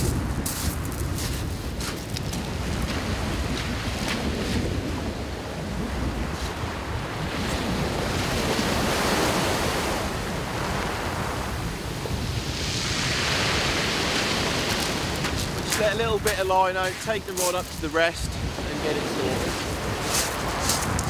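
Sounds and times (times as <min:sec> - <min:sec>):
wind buffeting microphone: 0:00.0 - 0:21.0
waves breaking on shingle: 0:12.9 - 0:21.0.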